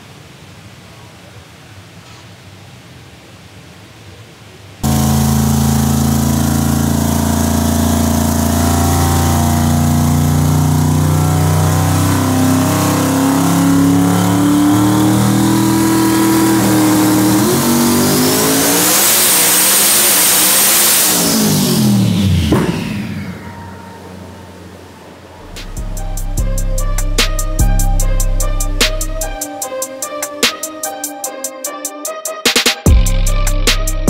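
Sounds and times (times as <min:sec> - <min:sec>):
loud engine revving on dyno: 0:04.8 - 0:23.7.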